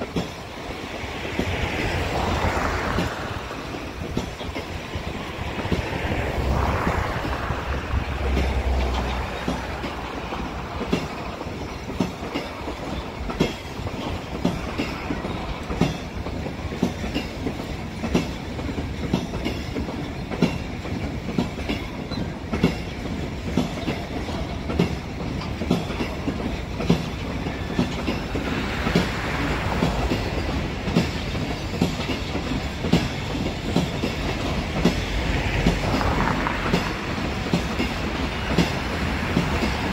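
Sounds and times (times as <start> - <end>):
train wheels clickety-clack: 0.0 - 39.9.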